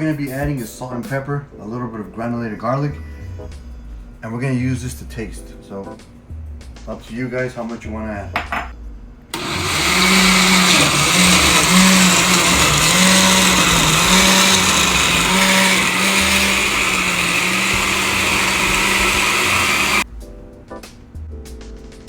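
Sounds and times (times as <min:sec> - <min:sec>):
blender motor running: 0:09.4 - 0:20.0.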